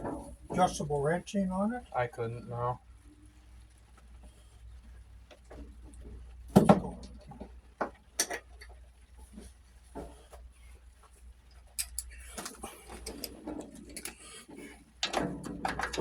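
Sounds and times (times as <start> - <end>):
metal clanks: 11.8 - 16.0.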